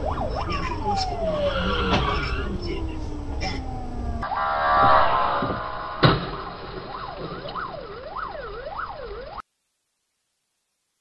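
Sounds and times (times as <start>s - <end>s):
vehicle squeal: 1.4s - 2.5s
sharp bang: 4.2s - 7.6s.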